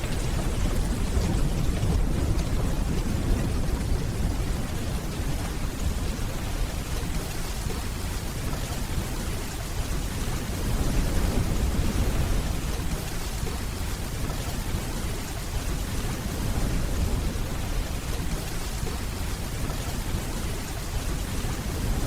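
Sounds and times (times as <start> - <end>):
distant thunder rumbling: 0.0 - 9.3
steady rainfall: 0.0 - 22.0.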